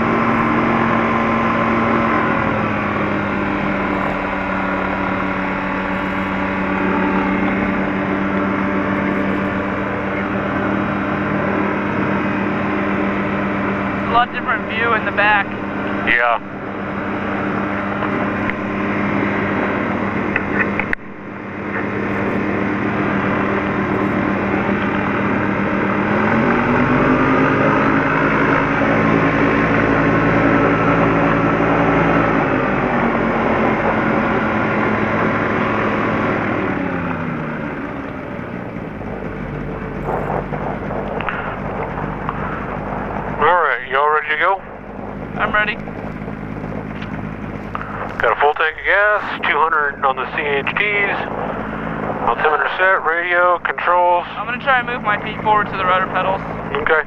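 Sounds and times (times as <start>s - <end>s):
light aircraft piston engine: 0.0s - 57.0s.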